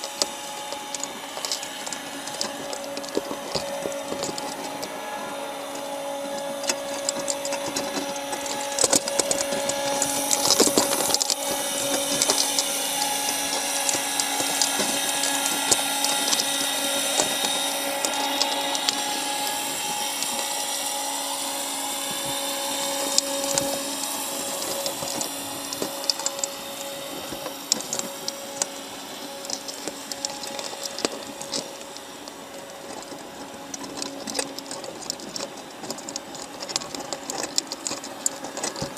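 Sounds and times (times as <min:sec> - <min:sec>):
small clicks and taps: 0:00.0 - 0:21.4, 0:22.0 - 0:38.9
underwater mechanical whine: 0:00.0 - 0:38.9.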